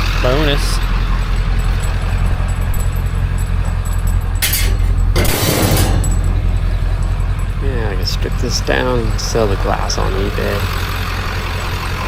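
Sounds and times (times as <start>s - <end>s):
vehicle engine idling: 0.0s - 12.0s
handling noises: 1.0s - 8.6s.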